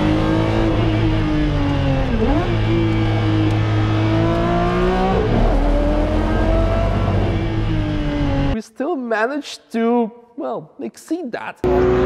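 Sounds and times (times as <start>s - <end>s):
car engine accelerating: 0.0s - 8.6s, 11.6s - 12.0s.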